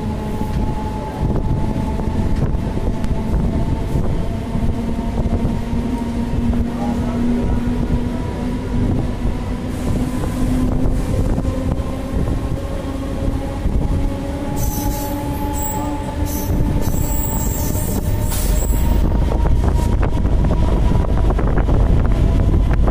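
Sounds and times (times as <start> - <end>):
train rumble with low hum: 0.0 - 22.9
wind buffeting microphone: 0.0 - 22.9
high-pitched wheel squeal: 14.6 - 20.0.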